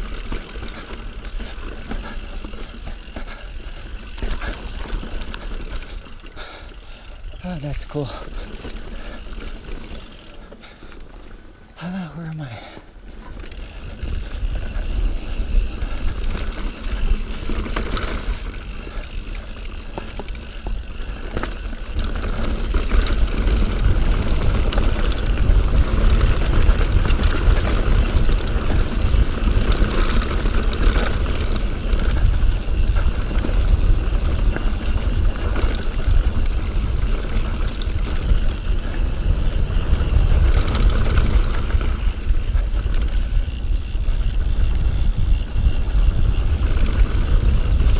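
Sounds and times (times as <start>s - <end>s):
bike frame rattling over rocks: 0.0s - 11.4s, 13.1s - 47.9s
wind buffeting microphone: 22.3s - 47.9s.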